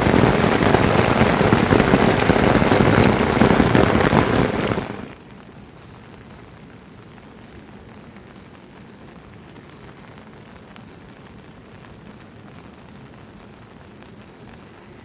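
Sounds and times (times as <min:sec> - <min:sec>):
drops tapping: 0:00.0 - 0:05.1
steady rain falling: 0:00.0 - 0:15.0.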